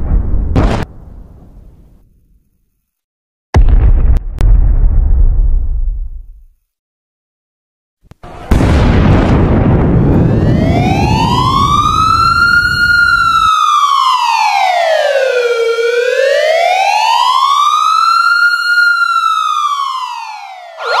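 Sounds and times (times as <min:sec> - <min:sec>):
explosion rumble: 0:00.0 - 0:01.9, 0:03.6 - 0:06.4, 0:08.4 - 0:13.5
emergency siren wailing: 0:10.0 - 0:21.0.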